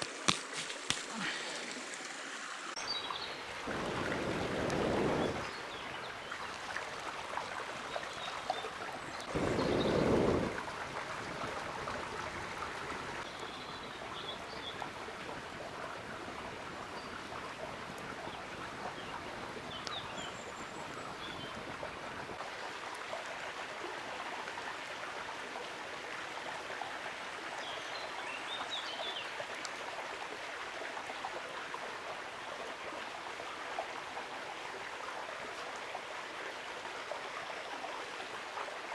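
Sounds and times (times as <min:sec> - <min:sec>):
river water rushing: 0:01.2 - 0:22.7.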